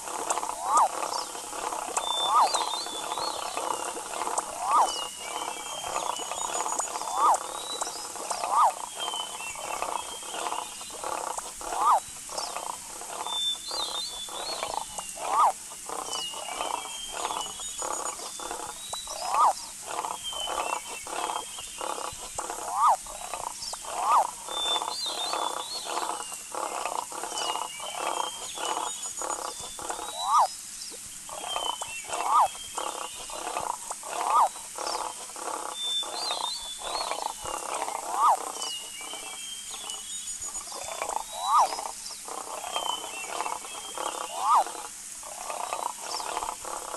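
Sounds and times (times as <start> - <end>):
chorus of rapid croaking calls: 0.0 - 30.5, 31.2 - 46.9
high chirps: 0.4 - 10.7.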